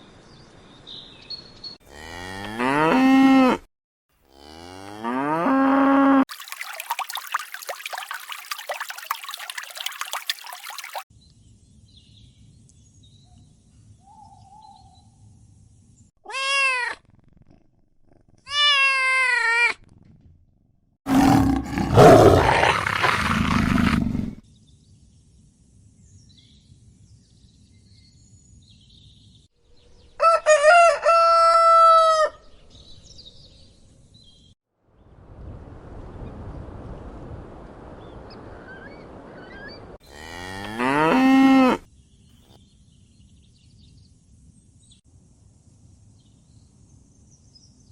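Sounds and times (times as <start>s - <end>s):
rough roar-like animal call: 21.1s - 24.4s.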